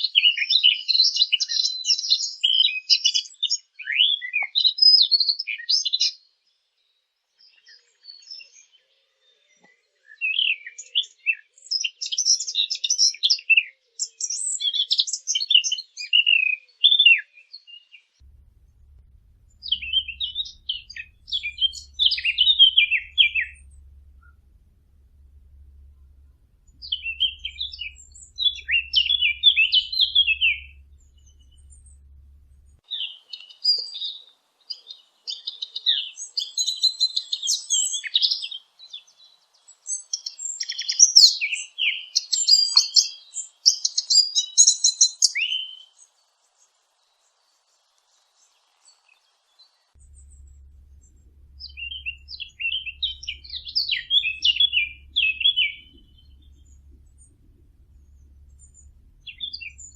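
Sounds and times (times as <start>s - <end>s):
small birds chirping: 17.6s - 59.9s.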